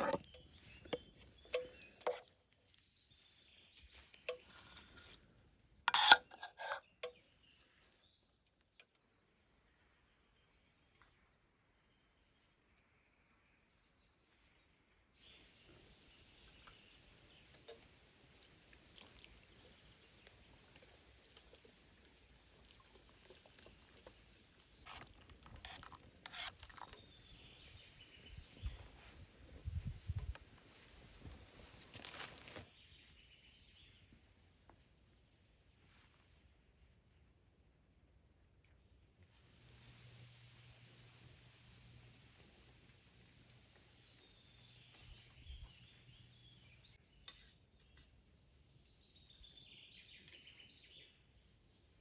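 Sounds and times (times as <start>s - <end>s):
birds twittering: 0.0s - 2.2s.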